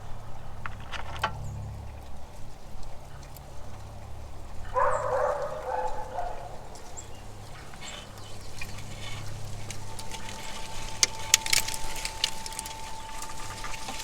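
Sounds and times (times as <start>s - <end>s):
steady low hum: 0.0s - 14.0s
animal call: 4.6s - 14.0s.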